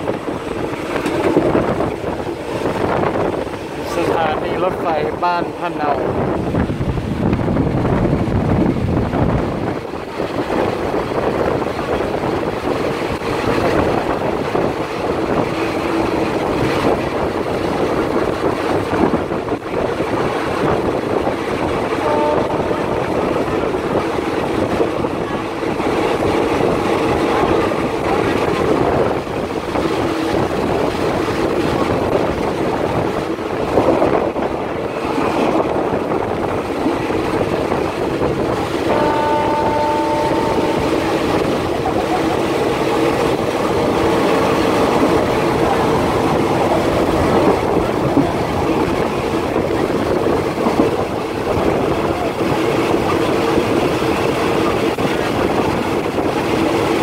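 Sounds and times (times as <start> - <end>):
rushing air: 0.0 - 57.0
train wheel and rail noise: 0.0 - 57.0
train horn blast: 22.0 - 23.2, 38.9 - 41.3.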